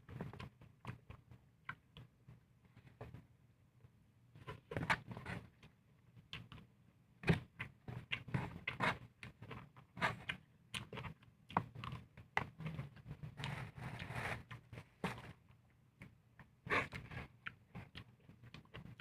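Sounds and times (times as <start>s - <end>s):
close-up eating sounds: 4.4s - 19.0s.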